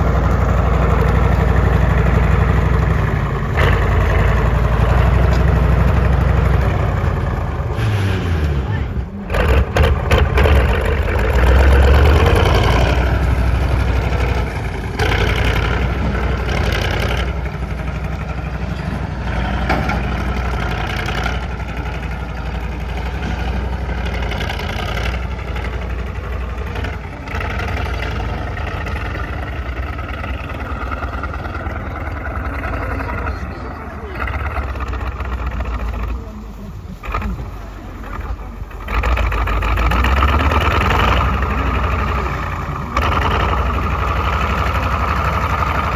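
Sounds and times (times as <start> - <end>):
tank diesel engine rumbling: 0.0 - 45.9.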